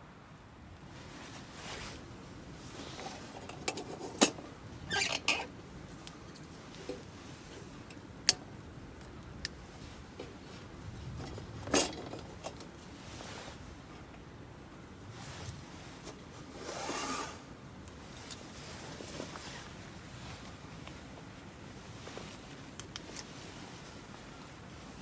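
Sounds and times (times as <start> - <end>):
rustling clatters: 0.9 - 8.4, 9.7 - 14.2.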